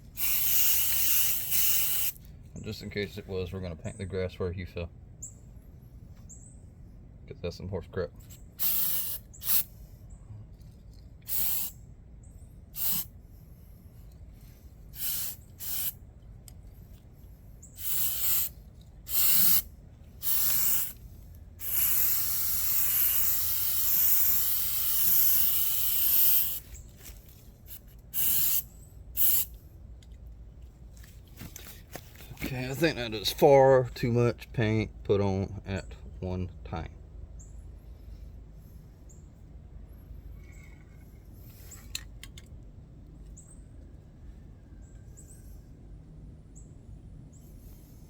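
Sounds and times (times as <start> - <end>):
aerosol spray can hissing: 0.2 - 2.2, 8.6 - 9.7, 11.3 - 11.7, 12.8 - 13.1, 15.0 - 16.0, 17.8 - 19.6, 20.2 - 21.0, 21.6 - 26.7, 27.7 - 29.5.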